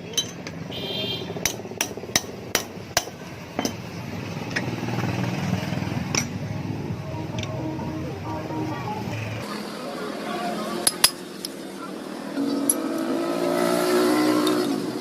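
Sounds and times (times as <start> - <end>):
hammer striking metal: 1.4 - 3.9.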